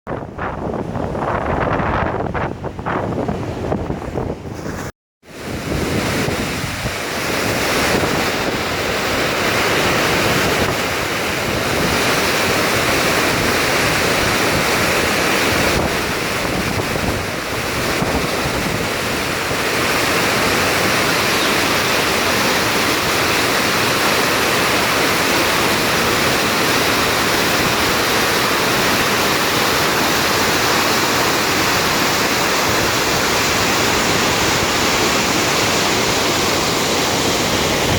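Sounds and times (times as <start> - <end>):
floodwater rushing down spillway: 5.3 - 37.9.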